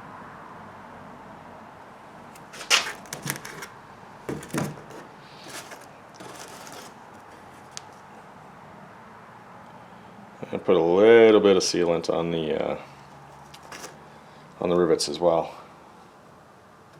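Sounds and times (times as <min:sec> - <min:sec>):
rustling: 0:02.4 - 0:08.1, 0:13.2 - 0:14.1.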